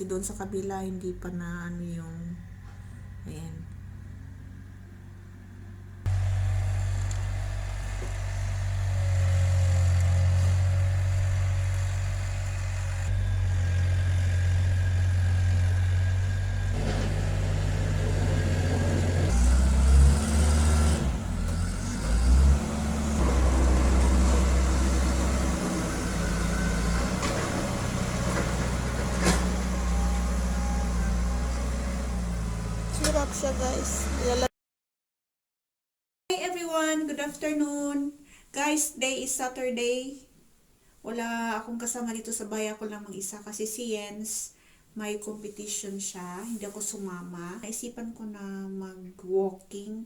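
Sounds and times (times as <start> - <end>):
snow-clearing machine engine: 2.6 - 34.5.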